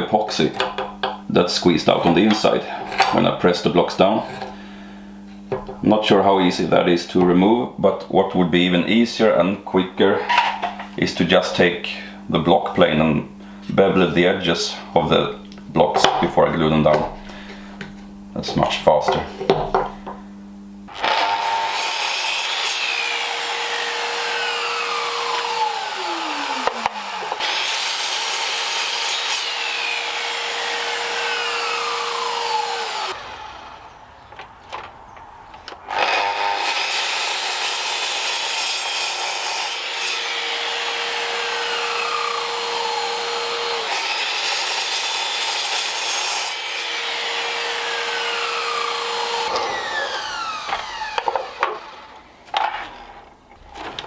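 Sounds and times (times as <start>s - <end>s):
wood being sawn: 20.9s - 33.9s, 35.9s - 52.2s.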